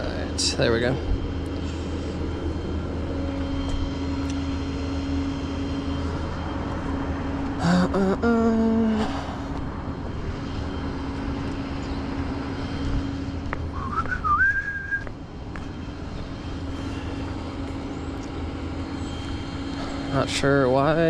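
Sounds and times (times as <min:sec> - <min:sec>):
vehicle engine idling: 0:00.0 - 0:21.0
short rising whistle: 0:13.7 - 0:15.1.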